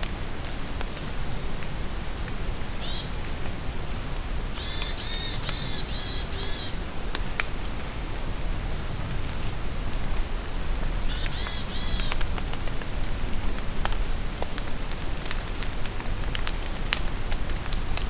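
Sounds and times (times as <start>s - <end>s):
rain drops ticking: 0.0s - 18.0s
steady rain: 0.0s - 18.0s.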